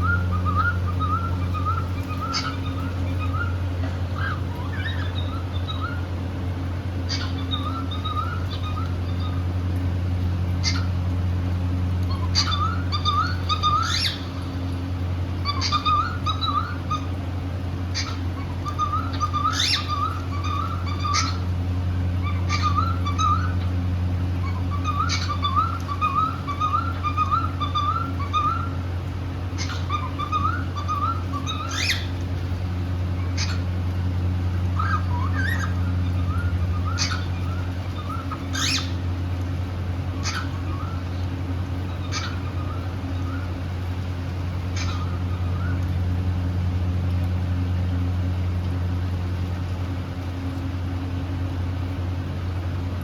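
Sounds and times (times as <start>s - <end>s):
cockatiels chirping and whistling: 0.0s - 3.6s, 4.2s - 6.0s, 7.1s - 9.4s, 10.6s - 10.9s, 12.1s - 14.5s, 15.4s - 17.1s, 17.9s - 21.4s, 22.2s - 23.6s, 24.4s - 28.8s, 29.6s - 32.1s, 34.8s - 39.0s, 40.2s - 41.2s, 41.9s - 43.4s, 44.8s - 45.8s
steady low hum: 0.0s - 53.0s.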